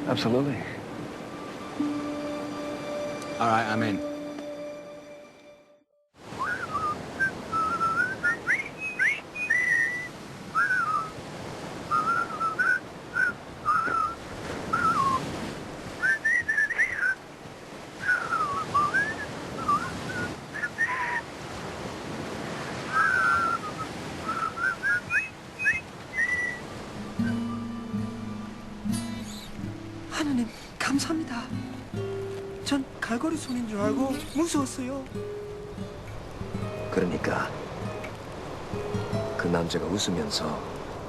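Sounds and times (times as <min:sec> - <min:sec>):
outdoor background hiss: 0:00.0 - 0:05.6, 0:06.2 - 0:41.0
bird whistled chirps: 0:06.4 - 0:11.1, 0:11.9 - 0:15.3, 0:16.0 - 0:17.2, 0:18.0 - 0:21.2, 0:22.9 - 0:27.7.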